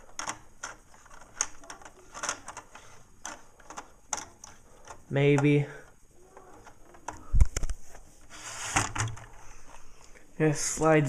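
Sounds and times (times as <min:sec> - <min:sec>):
plastic toy bricks clicking: 0:00.0 - 0:07.7.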